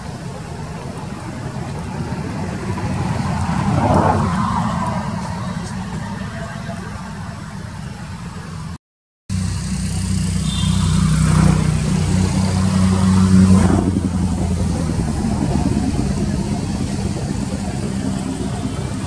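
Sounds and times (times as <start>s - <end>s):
motor engine running: 9.3s - 19.0s.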